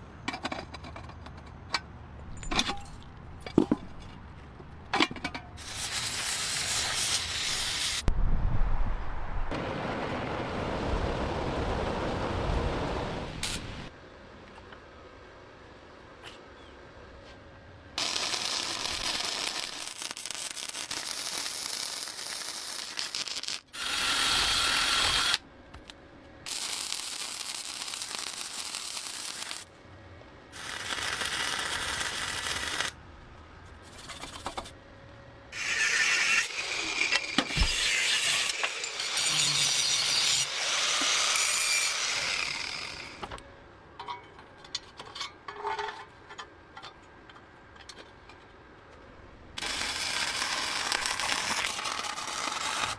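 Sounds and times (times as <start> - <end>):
workshop tool running with hiss: 23.7 - 25.4.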